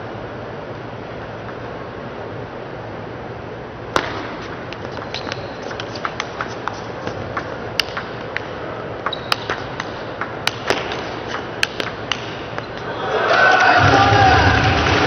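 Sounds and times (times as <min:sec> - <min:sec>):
table tennis ball clicking: 0:04.0 - 0:12.9
crowd cheering and clapping: 0:12.8 - 0:15.0.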